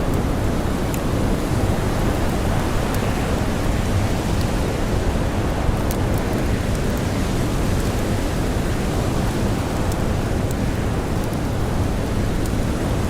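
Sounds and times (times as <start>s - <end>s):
blizzard wind and blowing snow: 0.0s - 13.0s
faint campfire crackles: 0.0s - 13.0s.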